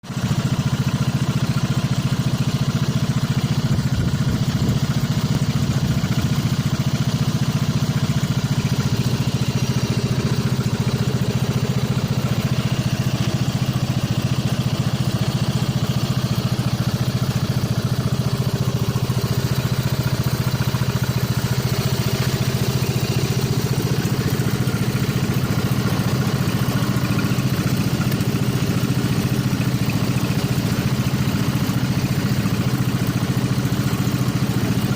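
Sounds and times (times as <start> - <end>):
lawnmower engine running: 0.0 - 34.9.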